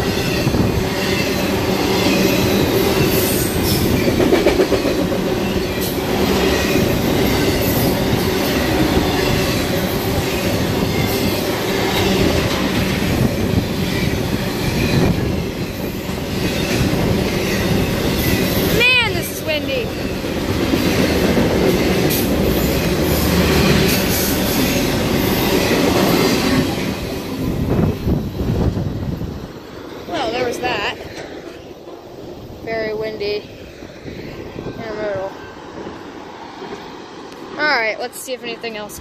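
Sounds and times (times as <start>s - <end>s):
rail clicks: 0.0s - 33.5s
freight train wheels rumbling on rails: 0.0s - 39.0s.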